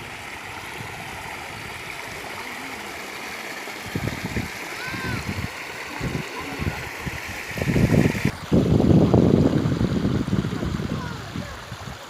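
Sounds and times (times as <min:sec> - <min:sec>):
rushing floodwater: 0:00.0 - 0:12.0.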